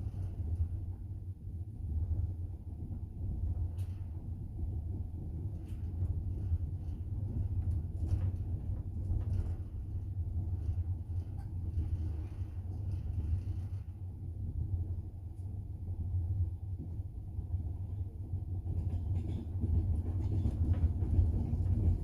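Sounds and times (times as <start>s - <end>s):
train rumbling inside carriage: 0.0s - 22.0s.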